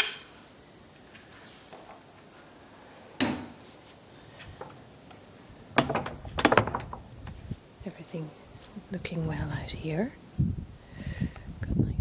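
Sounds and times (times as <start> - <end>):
low background hiss: 0.0 - 12.0
door clunking shut: 5.8 - 7.1.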